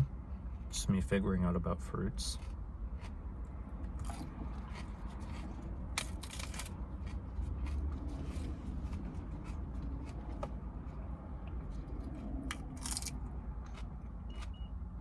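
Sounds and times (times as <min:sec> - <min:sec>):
low hum inside car: 0:00.0 - 0:15.0
lettuce crunching and chewing: 0:02.2 - 0:10.7, 0:11.8 - 0:14.6.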